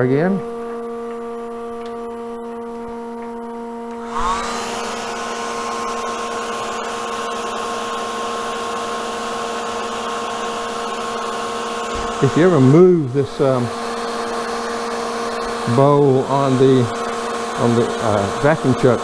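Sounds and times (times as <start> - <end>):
lathe electrical hum: 0.0 - 19.0
hair dryer blowing: 3.9 - 19.0.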